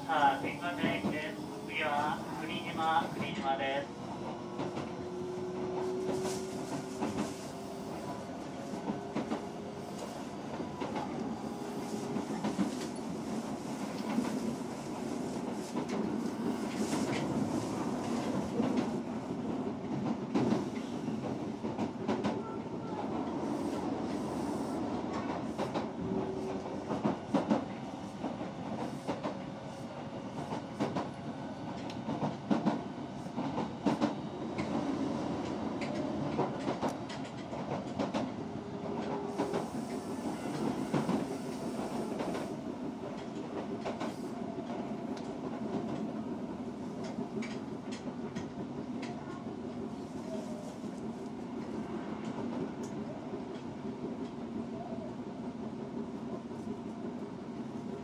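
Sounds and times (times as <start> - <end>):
wheels rumbling on rail: 0.0 - 54.7.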